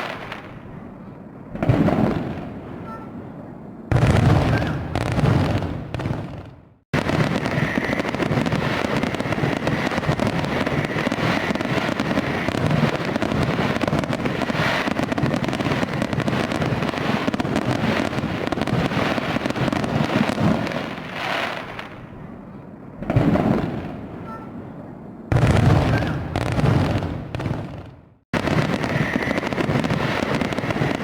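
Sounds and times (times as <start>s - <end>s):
fireworks crackling: 0.0s - 0.7s, 3.9s - 22.1s, 25.3s - 31.0s.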